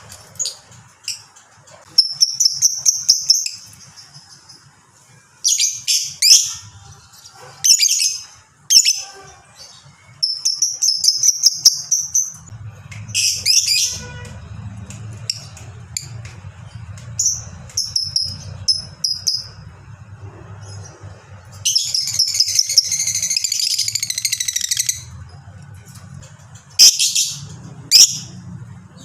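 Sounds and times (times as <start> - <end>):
lovebird chirping and trilling: 1.9 - 4.7, 5.4 - 12.5, 13.1 - 14.1, 15.2 - 19.7, 20.5 - 25.2, 26.8 - 28.4.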